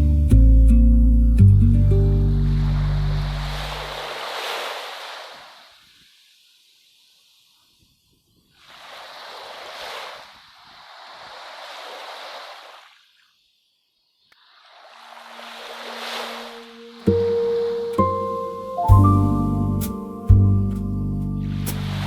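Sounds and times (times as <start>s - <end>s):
low held musical tone: 0.0s - 3.8s, 15.9s - 22.0s
ocean waves washing in: 2.1s - 20.5s, 21.4s - 22.0s.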